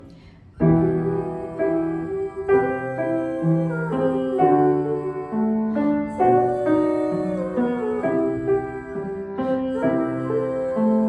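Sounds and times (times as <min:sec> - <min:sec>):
slow tender piano chords: 0:00.0 - 0:11.0.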